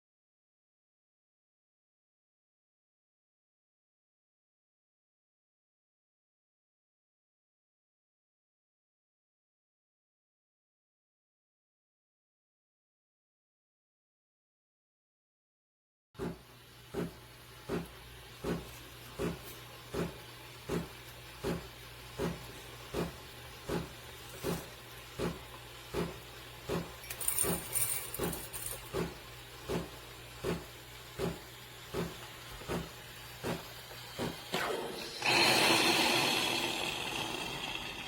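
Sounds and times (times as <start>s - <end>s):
steam hissing: 16.2s - 38.0s
espresso machine pulsing hum: 28.9s - 38.0s.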